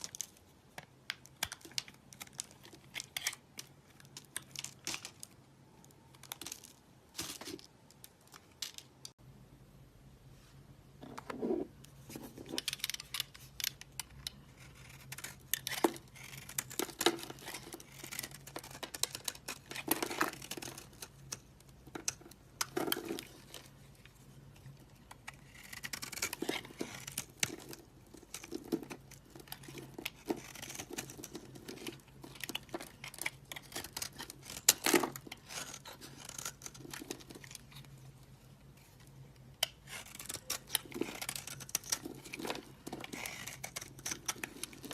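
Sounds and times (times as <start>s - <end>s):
faint steady hum: 0.0s - 44.9s
soap crackling and crunching: 12.6s - 23.7s, 24.7s - 38.0s, 39.0s - 44.9s.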